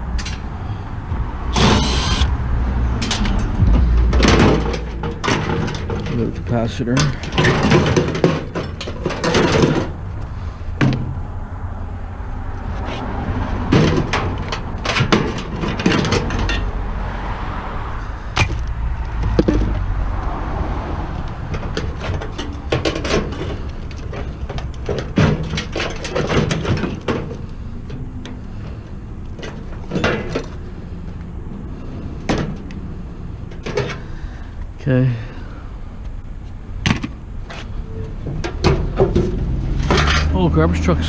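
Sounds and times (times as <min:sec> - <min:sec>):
steady low rumble: 0:00.0 - 0:05.1
metal clanks and scrapes: 0:01.5 - 0:02.4, 0:03.0 - 0:10.6, 0:13.7 - 0:16.8, 0:21.5 - 0:28.8, 0:29.4 - 0:30.6, 0:37.5 - 0:40.4.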